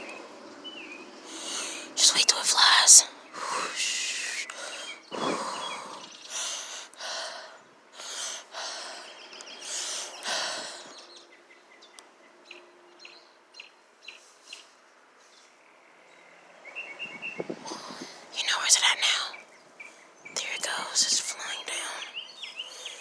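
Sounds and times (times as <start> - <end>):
faint bird chirps: 0.0 - 23.0
breaths on microphone: 1.3 - 9.0.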